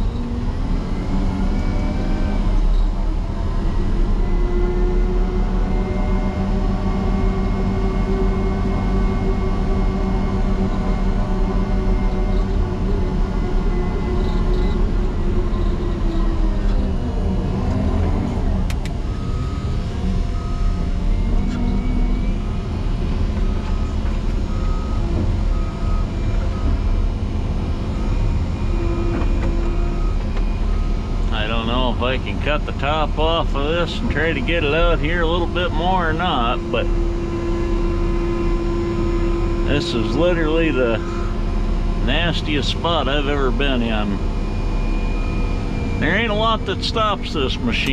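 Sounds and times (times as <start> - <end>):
diesel engine running hard: 0.0 - 47.9
backup alarm beeping: 18.6 - 27.0, 27.8 - 37.8, 42.1 - 47.9.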